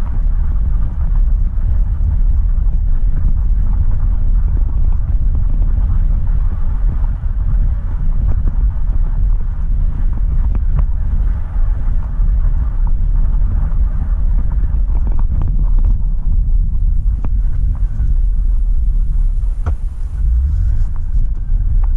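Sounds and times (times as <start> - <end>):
vehicle engine and tyres rumble: 0.0 - 21.9
wind noise: 0.0 - 21.9.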